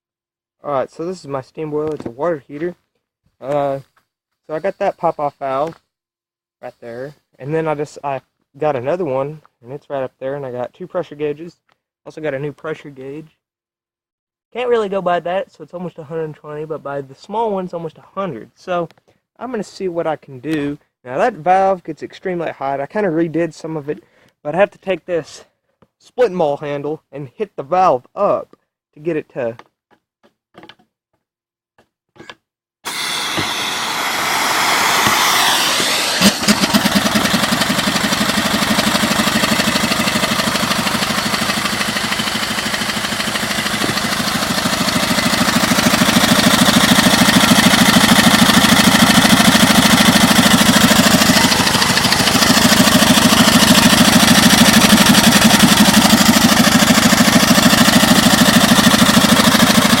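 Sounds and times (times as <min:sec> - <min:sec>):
steam rushing: 0:32.9 - 0:37.6
steam engine running: 0:32.9 - 1:00.0.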